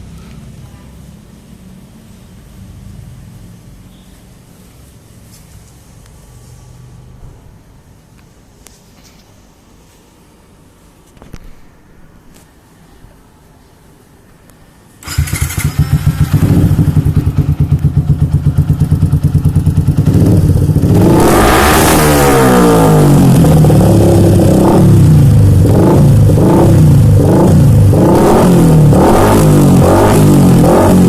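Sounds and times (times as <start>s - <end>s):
motorcycle engine revving: 15.0s - 31.0s.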